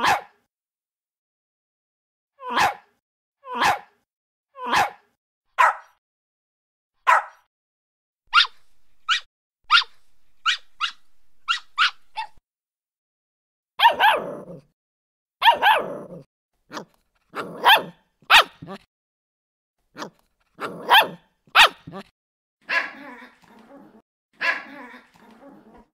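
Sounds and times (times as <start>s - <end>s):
puppy barking: 0.0s - 0.4s, 2.4s - 2.9s, 3.5s - 4.0s, 4.6s - 6.0s, 7.0s - 7.5s, 8.3s - 12.4s, 13.8s - 14.6s, 15.4s - 18.8s, 20.0s - 23.7s, 24.4s - 25.9s
puppy yipping: 7.1s - 7.5s, 8.3s - 12.4s, 13.8s - 14.3s, 15.4s - 15.9s, 16.7s - 18.8s, 20.0s - 22.0s, 24.4s - 24.8s.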